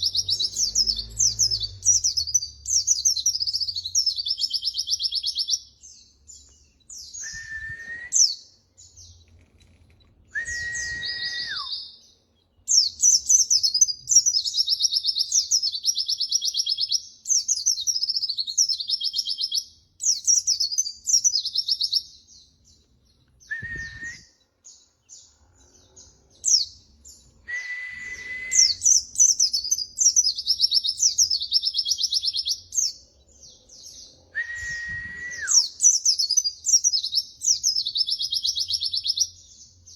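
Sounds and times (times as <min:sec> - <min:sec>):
bird twittering song: 0:00.0 - 0:39.9
bird whistle: 0:06.9 - 0:08.4, 0:10.3 - 0:12.0, 0:23.4 - 0:24.4, 0:27.4 - 0:32.8, 0:34.3 - 0:39.3.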